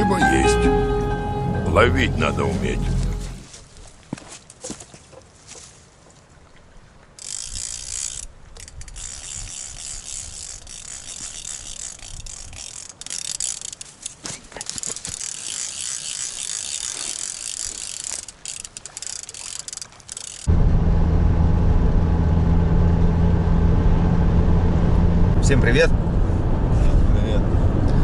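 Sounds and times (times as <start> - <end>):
fishing reel ratchet clicking: 7.2 - 20.5
wind rumbling on microphone: 24.1 - 28.0.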